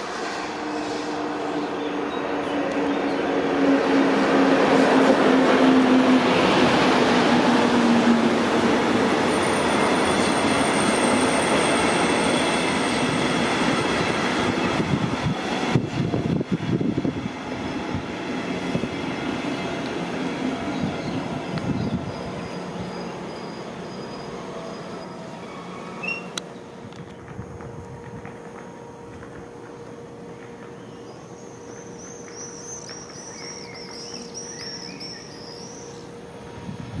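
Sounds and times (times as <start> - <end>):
electric train passing: 0.0 - 37.0
thin high squeal: 23.3 - 26.4.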